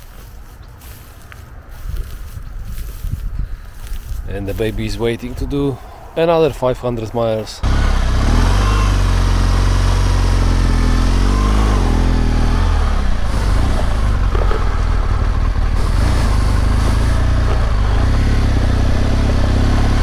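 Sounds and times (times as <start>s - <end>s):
motorcycle engine running: 7.6s - 20.0s.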